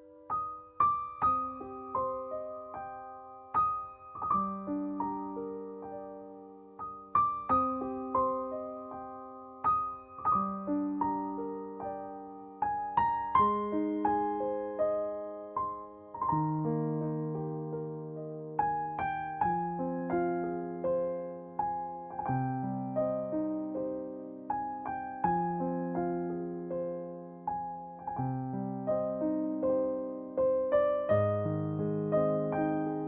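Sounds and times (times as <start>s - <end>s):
slow gentle piano music: 0.0s - 33.0s.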